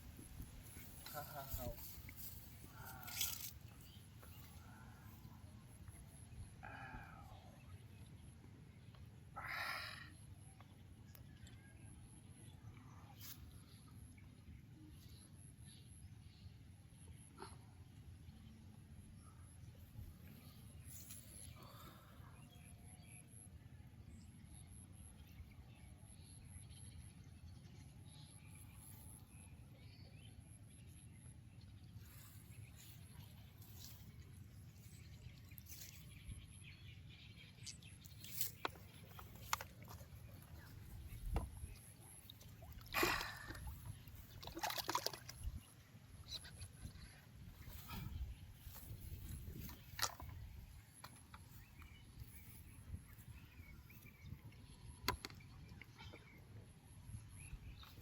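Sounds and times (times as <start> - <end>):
water splashing and sloshing: 37.7 - 51.6.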